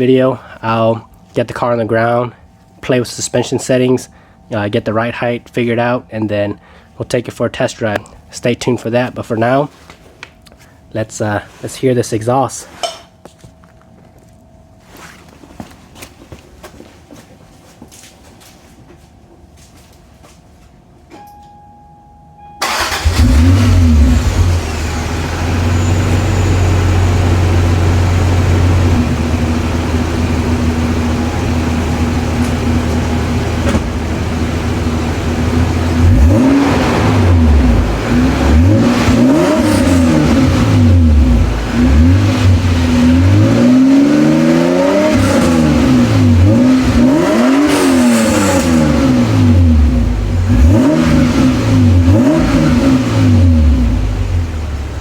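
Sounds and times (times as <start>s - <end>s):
car engine starting and revving: 22.6s - 55.0s.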